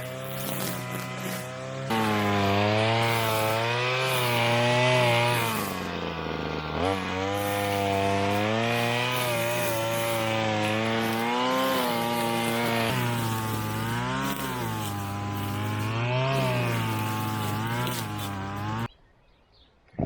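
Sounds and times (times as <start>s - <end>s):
string trimmer engine running: 0.0s - 18.9s.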